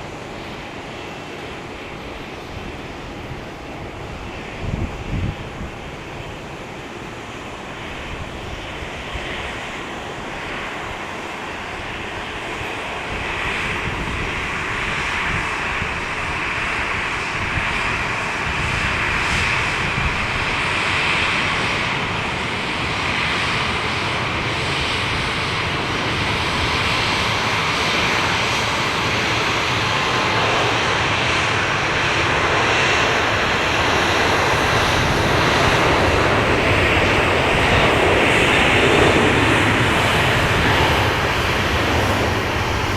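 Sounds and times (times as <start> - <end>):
airliner engines rushing: 0.0 - 42.9.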